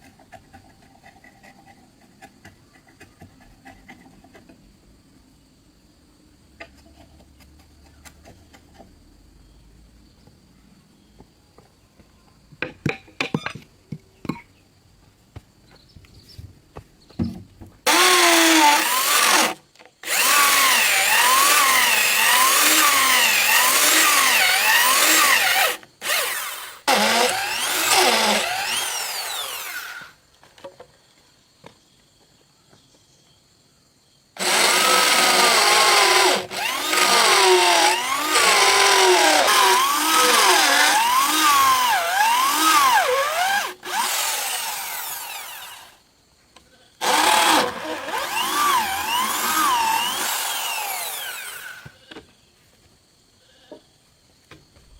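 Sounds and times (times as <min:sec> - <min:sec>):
power tool running under load: 0:17.9 - 0:30.1, 0:34.4 - 0:45.9, 0:47.0 - 0:51.9.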